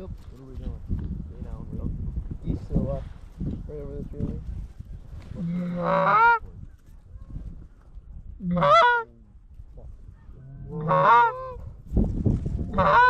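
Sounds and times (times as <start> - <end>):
goose honks: 5.4 - 6.4, 8.4 - 9.1, 10.7 - 11.6, 12.8 - 13.0.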